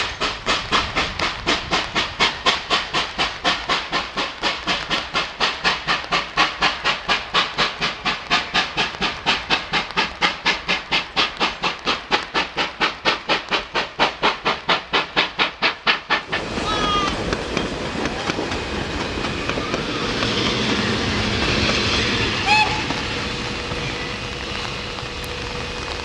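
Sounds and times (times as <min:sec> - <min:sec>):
rushing train noise: 0:00.0 - 0:26.0
steam locomotive chuffing: 0:00.0 - 0:26.0.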